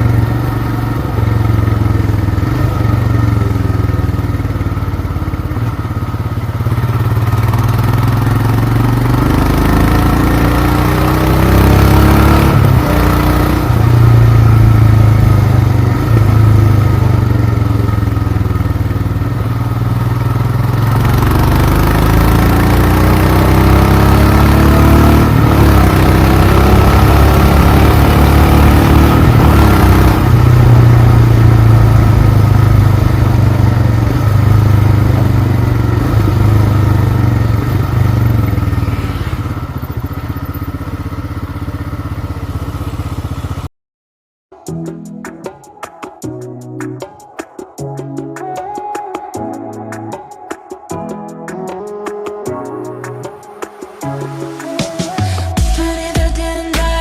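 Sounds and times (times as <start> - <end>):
motorcycle engine revving: 0.0 - 43.7.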